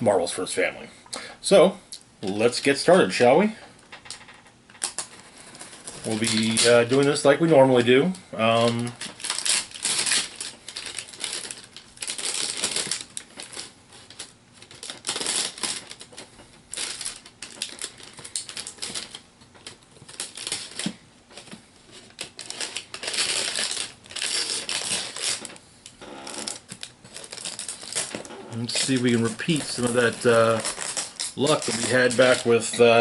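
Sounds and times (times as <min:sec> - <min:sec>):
cardboard scraping and rustling: 0:26.2 - 0:33.0.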